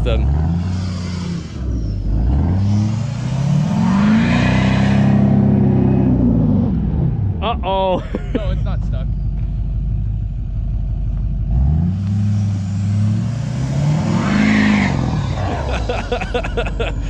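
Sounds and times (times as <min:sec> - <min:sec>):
tires churning snow: 0:00.0 - 0:09.5, 0:10.8 - 0:17.0
truck engine revving: 0:00.0 - 0:17.0.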